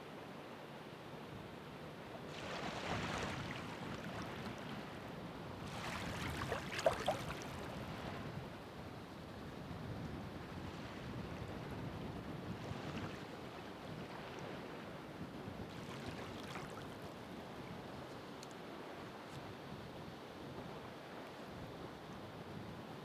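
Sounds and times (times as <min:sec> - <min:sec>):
waves breaking on shore: 0:02.2 - 0:08.5, 0:12.4 - 0:17.8
sharp water splashes: 0:05.8 - 0:07.7.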